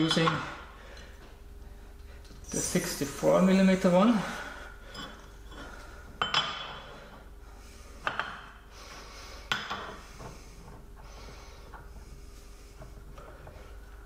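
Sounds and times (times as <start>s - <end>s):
steel cups clinking: 4.9s - 6.9s.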